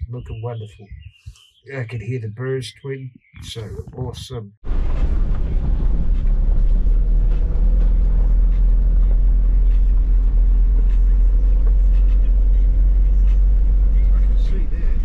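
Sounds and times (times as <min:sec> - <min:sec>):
car engine rumble: 0:03.5 - 0:15.0
road noise: 0:04.6 - 0:15.0.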